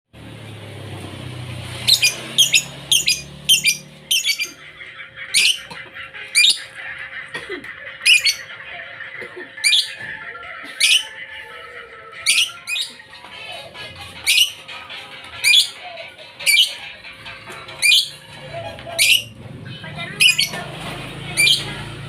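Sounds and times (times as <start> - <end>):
bird chirping: 1.8 - 5.7, 8.0 - 8.5, 12.1 - 13.2, 14.2 - 14.8, 15.4 - 15.8, 16.4 - 16.9, 17.6 - 19.4, 20.1 - 20.6, 21.3 - 21.9.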